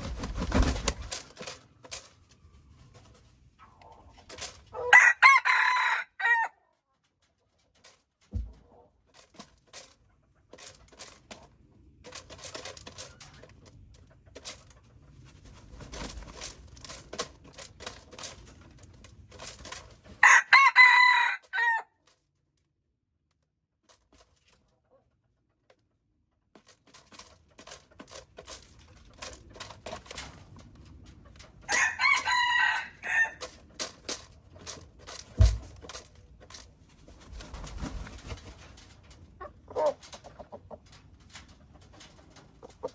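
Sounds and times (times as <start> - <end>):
rooster crowing: 4.8 - 6.6, 20.2 - 21.9, 31.7 - 33.4.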